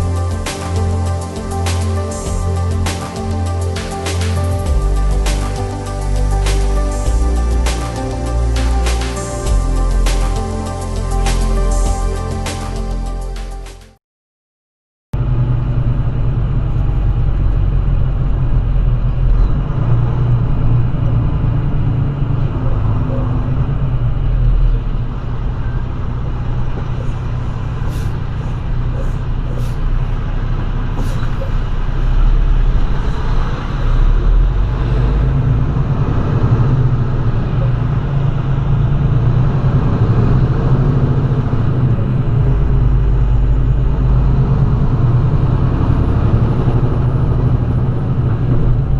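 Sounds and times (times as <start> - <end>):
truck engine and road rumble: 0.0 - 14.0, 15.2 - 48.9.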